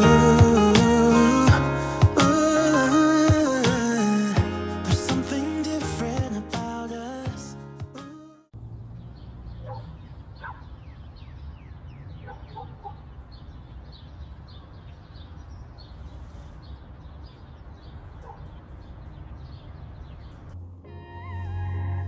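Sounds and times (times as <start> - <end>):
birds chirping: 8.6 - 20.6.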